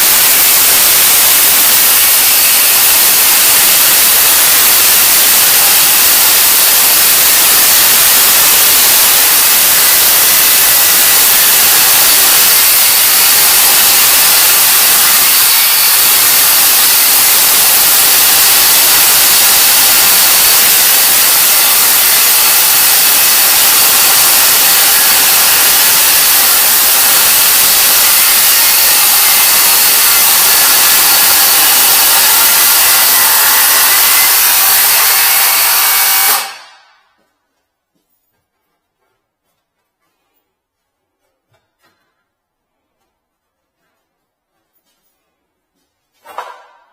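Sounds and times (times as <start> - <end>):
battery saw cutting: 0.0 - 36.9.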